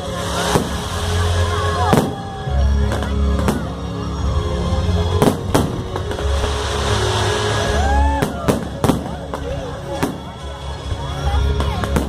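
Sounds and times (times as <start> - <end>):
firework bangs: 0.0 - 3.8, 5.1 - 12.0
fizzing crackle: 5.9 - 9.4.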